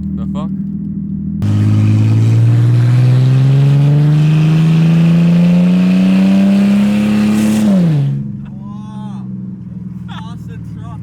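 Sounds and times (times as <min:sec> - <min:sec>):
loud raw engine revving: 0:01.4 - 0:08.3.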